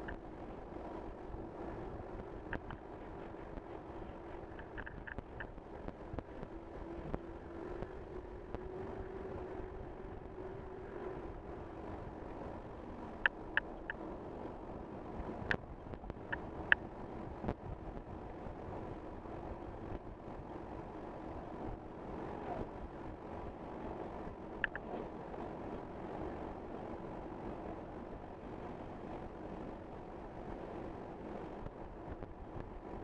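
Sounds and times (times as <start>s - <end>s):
low steady hum: 0.0s - 33.0s
road and tyre noise: 0.0s - 33.0s
short sharp ticks: 24.6s - 24.9s.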